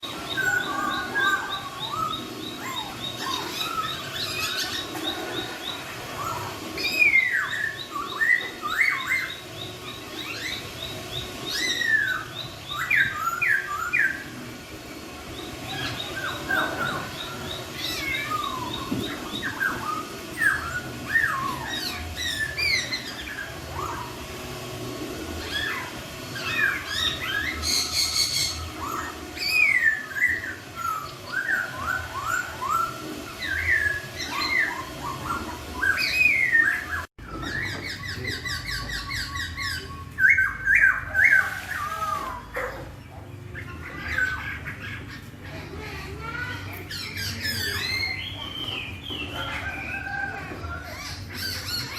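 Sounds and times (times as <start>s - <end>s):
bird whistling song: 0.0s - 14.5s, 15.2s - 24.5s, 25.4s - 42.9s.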